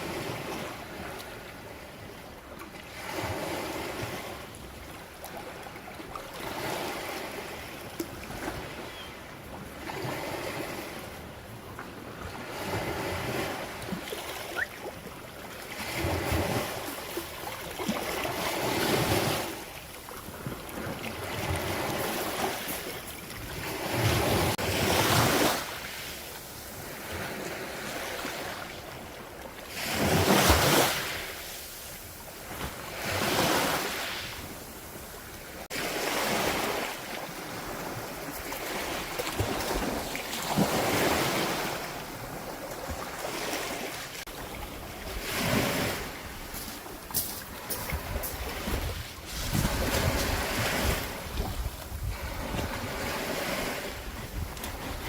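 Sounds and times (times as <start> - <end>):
sea waves breaking on beach: 0.0 - 55.0
wind buffeting microphone: 47.5 - 55.0.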